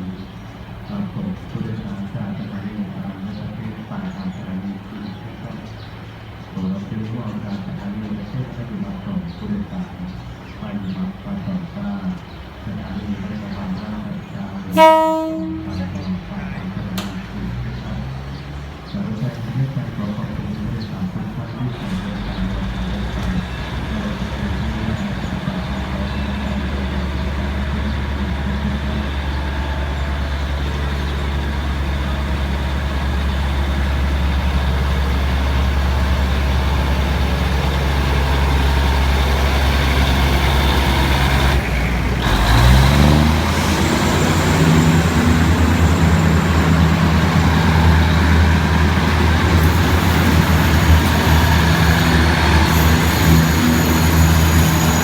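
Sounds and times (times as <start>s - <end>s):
railcar diesel engines humming: 0.0s - 55.0s.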